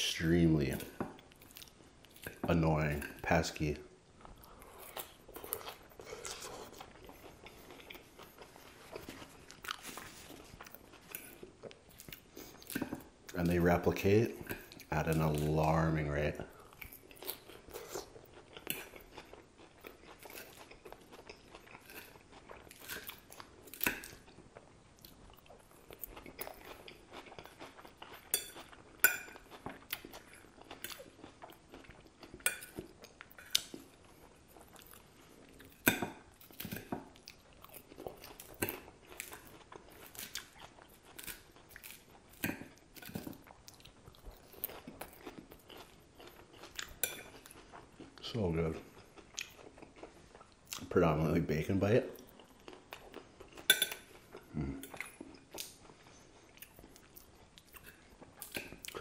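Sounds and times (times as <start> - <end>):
crunchy salad chewing: 4.2 - 15.9, 16.6 - 51.4, 52.1 - 59.0
fork clinking on ceramic plate: 53.7 - 54.0.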